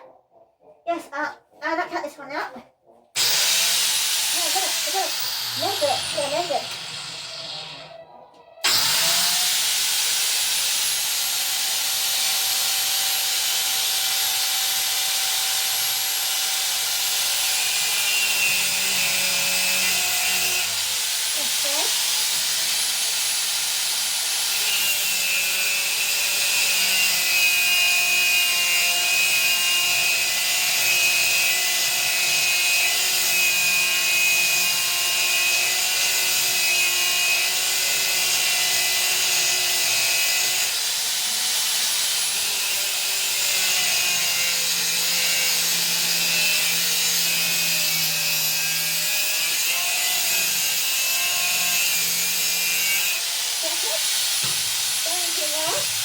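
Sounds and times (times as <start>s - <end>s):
angle grinder cutting steel: 3.2s - 8.0s, 8.6s - 56.0s.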